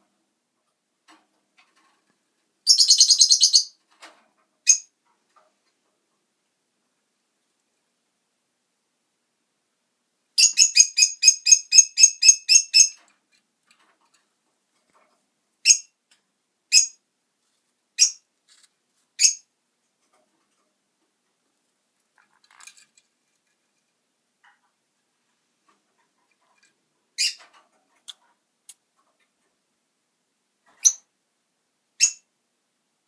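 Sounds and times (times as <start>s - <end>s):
parrot high chirps: 2.7s - 3.8s, 10.4s - 13.0s, 16.7s - 17.0s, 18.0s - 18.2s, 19.2s - 19.4s, 27.2s - 27.4s, 30.8s - 31.0s, 32.0s - 32.2s.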